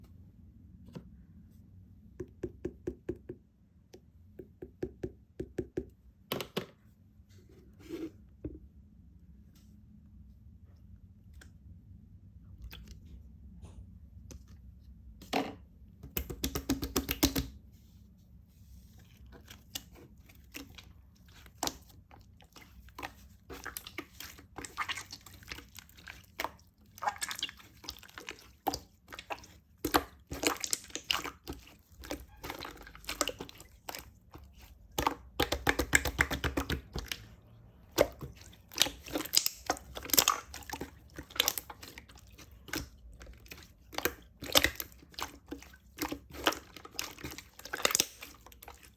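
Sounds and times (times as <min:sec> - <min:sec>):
slime squished by hand: 0:19.4 - 0:48.9.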